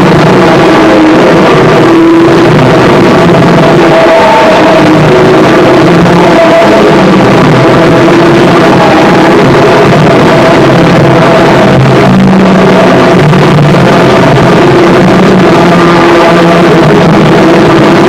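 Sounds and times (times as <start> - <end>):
harsh noise music: 0.0 - 18.0.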